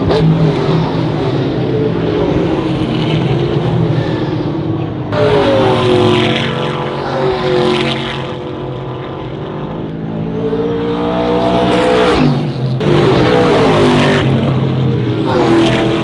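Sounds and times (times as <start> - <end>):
race car engines: 0.0 - 16.0.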